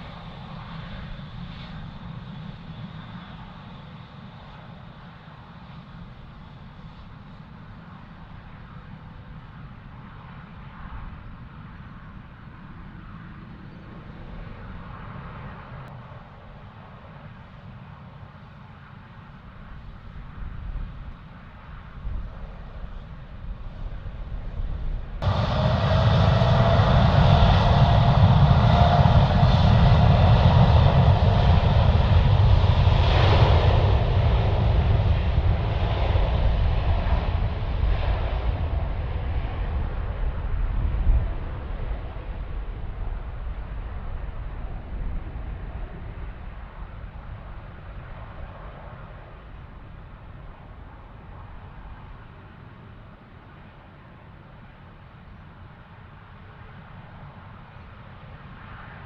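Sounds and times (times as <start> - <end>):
faint steady engine whine: 0.0 - 59.0
jet engines roaring: 22.1 - 54.3.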